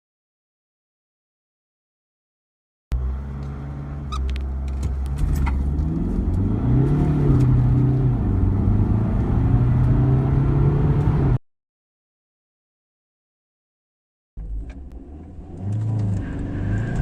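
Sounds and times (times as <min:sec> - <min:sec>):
car engine accelerating: 0:02.9 - 0:11.4, 0:14.4 - 0:17.0.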